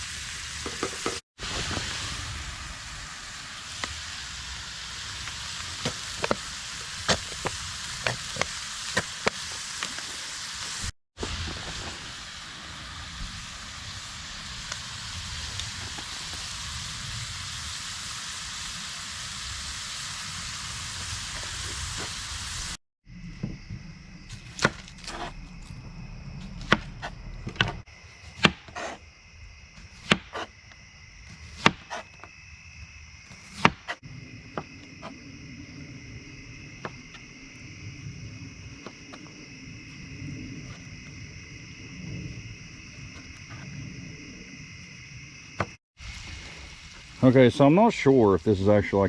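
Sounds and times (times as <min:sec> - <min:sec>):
meat sizzling in a skillet: 0:00.0 - 0:22.8, 0:46.0 - 0:48.4
high insect trill: 0:11.5 - 0:49.0.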